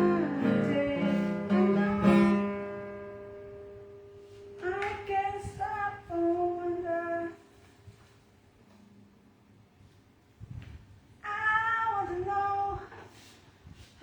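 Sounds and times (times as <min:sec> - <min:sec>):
person singing: 0:00.0 - 0:03.0, 0:04.5 - 0:07.4
acoustic guitar strumming: 0:00.0 - 0:05.8.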